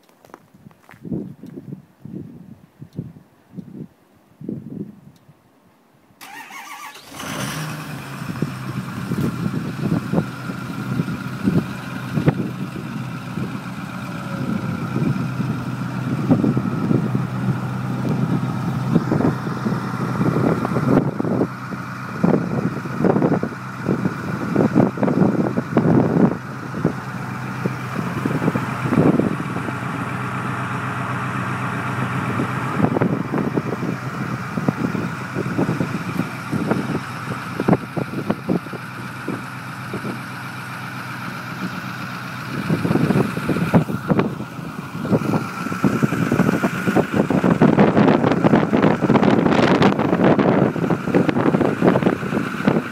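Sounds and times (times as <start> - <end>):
diesel engine starting and idling: 6.2 - 52.9.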